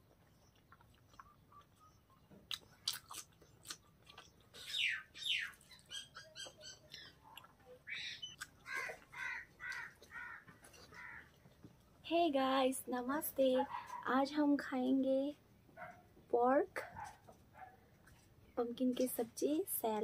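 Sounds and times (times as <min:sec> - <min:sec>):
chewing and wet mouth sounds: 0:00.0 - 0:12.0
bird calling: 0:00.3 - 0:02.9, 0:04.2 - 0:11.4.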